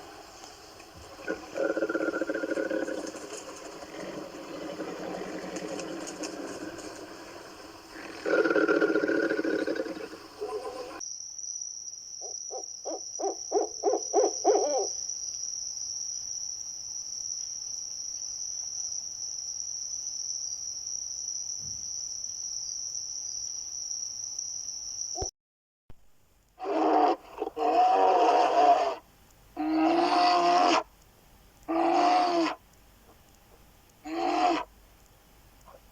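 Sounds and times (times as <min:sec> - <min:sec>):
high-pitched insect trill: 0:00.3 - 0:25.3
loud animal call: 0:01.1 - 0:11.0, 0:26.6 - 0:29.0, 0:29.6 - 0:30.9, 0:31.7 - 0:32.6, 0:34.0 - 0:34.7.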